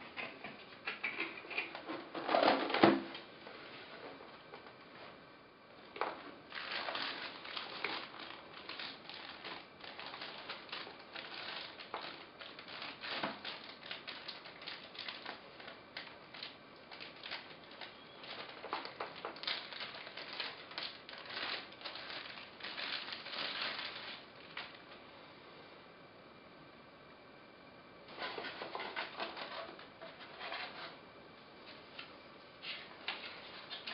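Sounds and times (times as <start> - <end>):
packaging crinkling and rustling: 1.0 - 3.2, 5.9 - 24.8, 28.1 - 30.9.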